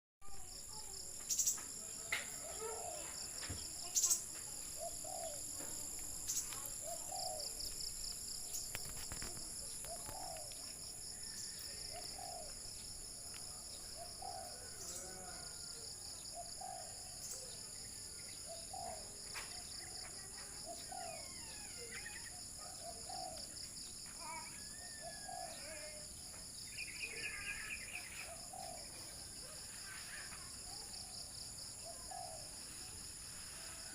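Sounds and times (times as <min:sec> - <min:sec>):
small birds chirping: 0:00.2 - 0:33.9
insect buzzing: 0:03.4 - 0:10.6
dove cooing: 0:04.8 - 0:05.6, 0:06.6 - 0:07.7, 0:08.8 - 0:10.6, 0:11.9 - 0:12.6.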